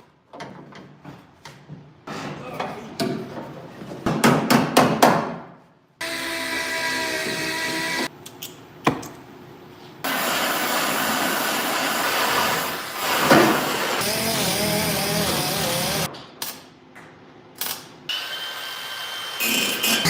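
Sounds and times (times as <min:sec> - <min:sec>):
loud rushing power tool noise: 0:10.1 - 0:16.1
power tool whine: 0:13.5 - 0:16.1.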